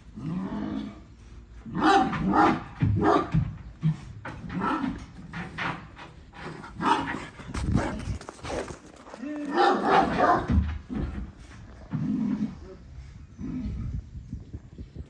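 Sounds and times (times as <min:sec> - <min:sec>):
dog barking: 0:01.7 - 0:03.4, 0:06.8 - 0:08.1, 0:09.5 - 0:10.6.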